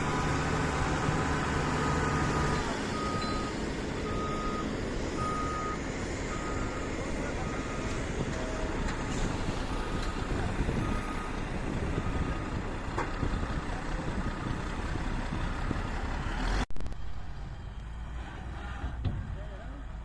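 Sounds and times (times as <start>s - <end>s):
diesel machinery engine running: 0.0s - 16.6s
reversing alarm beeping: 1.8s - 8.8s.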